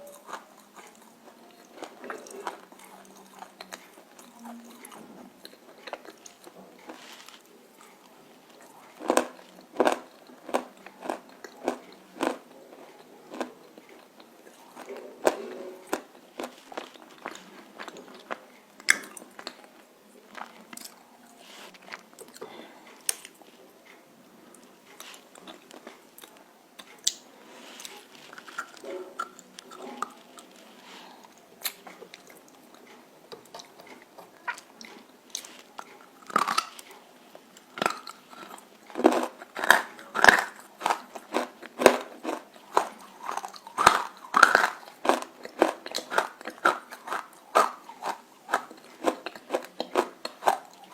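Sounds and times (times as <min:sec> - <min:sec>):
crunchy food being chewed: 0:00.0 - 0:50.9.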